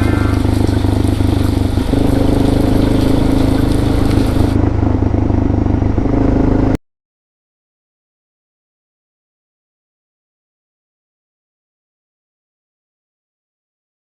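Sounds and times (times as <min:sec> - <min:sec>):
wind hiss: 0:00.0 - 0:04.6
motorcycle engine running: 0:00.0 - 0:06.8.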